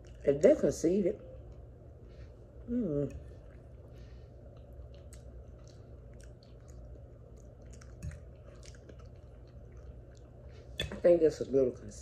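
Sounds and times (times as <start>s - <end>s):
low steady hum: 0.0s - 12.0s
person chewing food: 3.2s - 10.8s.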